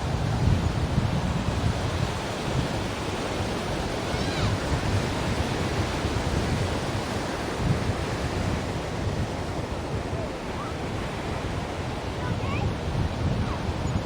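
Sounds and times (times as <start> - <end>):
ocean waves on shore: 0.0 - 14.0
faint whistle-like glide: 10.1 - 10.8, 13.4 - 14.0.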